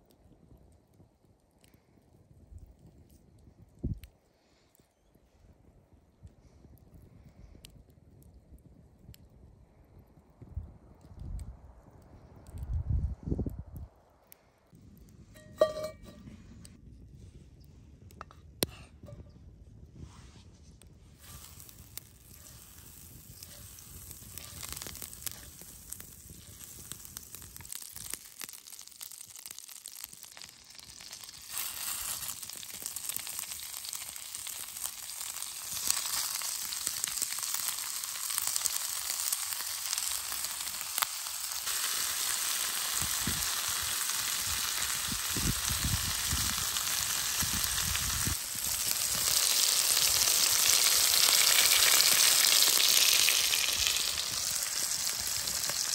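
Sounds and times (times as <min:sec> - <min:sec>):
meat sizzling in a skillet: 0:21.2 - 0:55.9.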